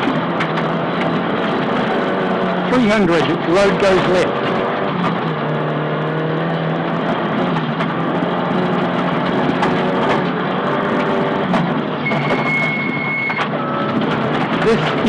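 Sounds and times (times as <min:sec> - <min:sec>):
sharp clicks and knocks: 0:00.0 - 0:02.0, 0:06.9 - 0:15.0
car engine under load: 0:00.0 - 0:15.0.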